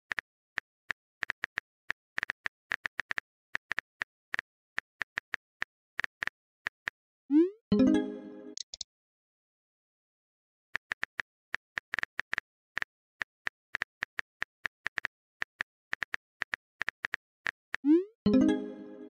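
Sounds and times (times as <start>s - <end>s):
chiming message tone: 7.7s - 8.6s, 18.3s - 19.0s.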